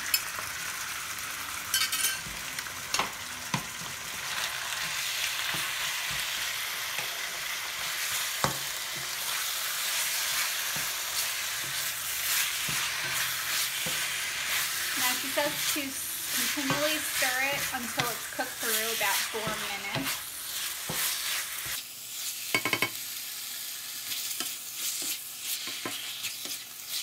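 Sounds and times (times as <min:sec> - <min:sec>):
chicken sizzling in a wok: 0:00.0 - 0:27.0.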